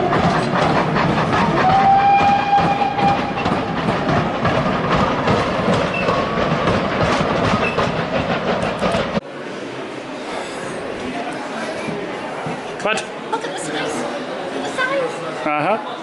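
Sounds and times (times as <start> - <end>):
train wheels clicking over rail joints: 0.0 - 9.2.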